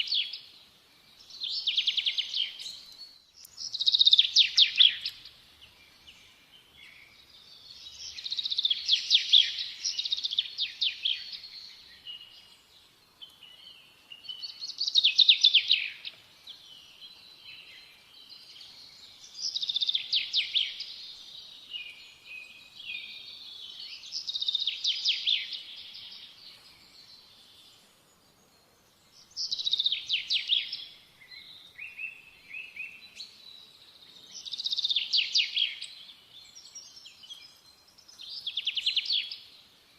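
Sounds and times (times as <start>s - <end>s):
songbird trilling: 1.4s - 5.3s.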